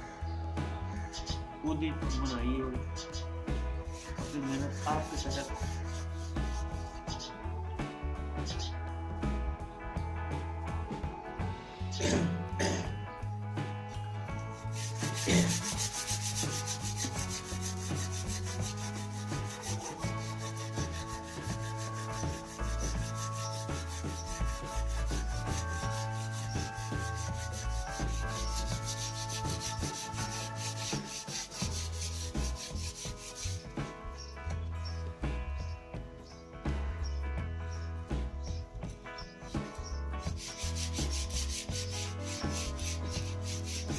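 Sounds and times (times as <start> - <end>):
background music with bass: 0.0 - 43.9
sandpaper rasping on wood: 3.8 - 7.3, 14.6 - 33.8, 40.2 - 43.9.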